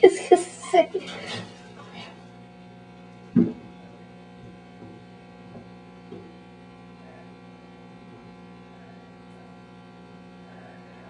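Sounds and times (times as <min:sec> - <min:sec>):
electrical hum: 0:00.0 - 0:11.0
faint small knocks: 0:03.3 - 0:03.8, 0:04.4 - 0:06.4.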